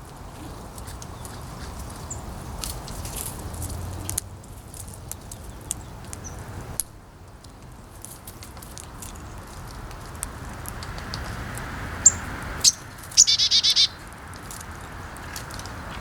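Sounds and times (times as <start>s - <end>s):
animals tapping on seed: 0.7s - 13.3s, 14.0s - 16.0s
high bird chirp: 12.0s - 14.0s.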